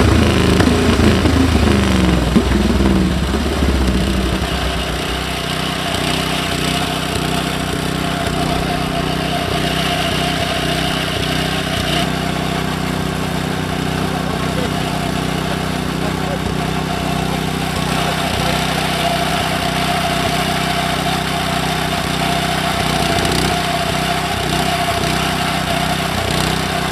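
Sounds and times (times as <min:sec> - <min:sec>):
motorcycle engine blipping: 0:00.0 - 0:26.9.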